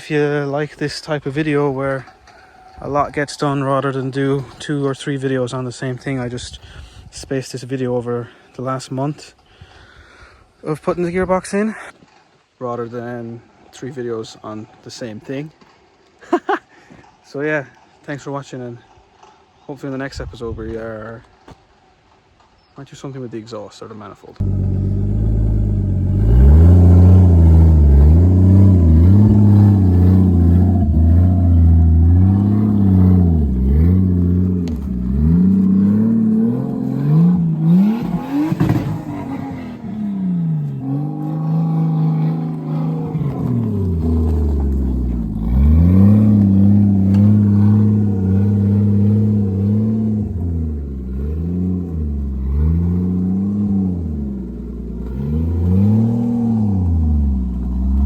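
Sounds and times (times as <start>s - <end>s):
car engine revving: 24.4s - 58.0s.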